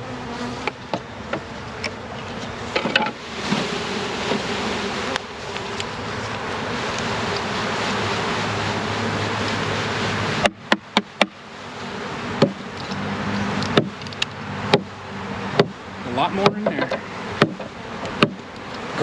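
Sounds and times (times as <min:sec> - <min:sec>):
honeybees buzzing loudly: 0:00.0 - 0:19.0
sharp knocks on box: 0:13.7 - 0:14.0, 0:16.4 - 0:18.4.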